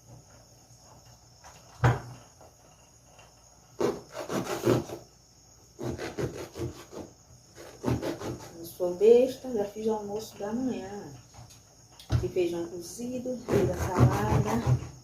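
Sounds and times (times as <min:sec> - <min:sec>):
rubbing and scraping: 0:00.0 - 0:05.1, 0:05.7 - 0:08.7, 0:13.3 - 0:15.0.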